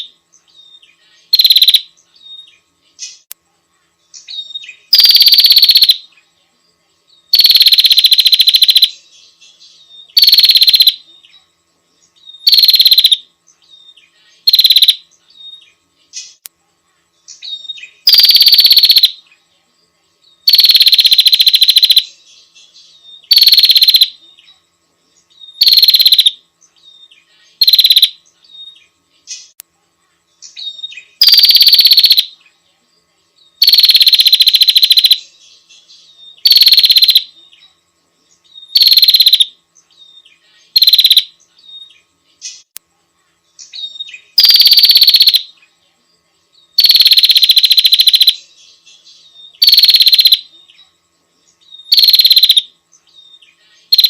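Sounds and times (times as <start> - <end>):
bird's rapid rattling call: 1.3 - 1.8, 23.3 - 24.1, 25.6 - 26.3, 31.2 - 32.3, 36.4 - 37.2, 38.7 - 39.5, 44.4 - 45.4, 46.8 - 48.4, 49.6 - 50.4, 51.9 - 52.6.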